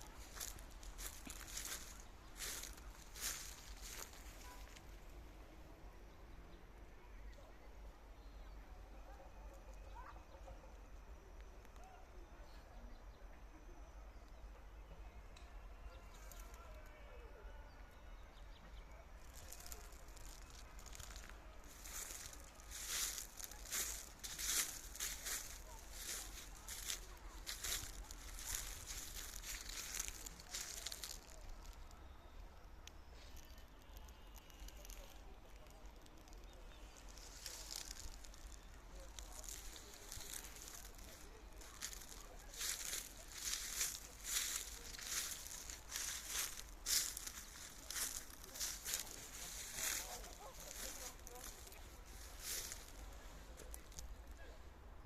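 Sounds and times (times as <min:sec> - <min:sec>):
soft crackles: 0:00.0 - 0:05.2, 0:19.2 - 0:54.8.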